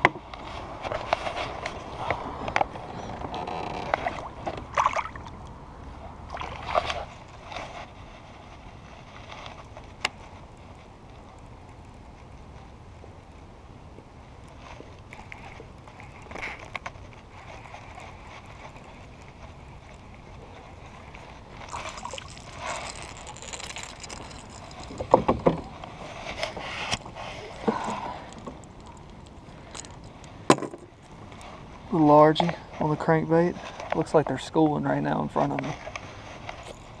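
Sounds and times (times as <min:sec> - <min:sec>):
water splashing and sloshing: 0:00.4 - 0:10.3, 0:14.5 - 0:31.7.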